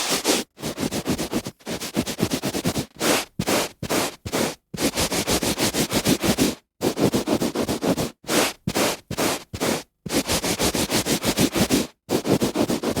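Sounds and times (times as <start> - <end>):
hand rubbing on carpet: 0.0 - 13.0.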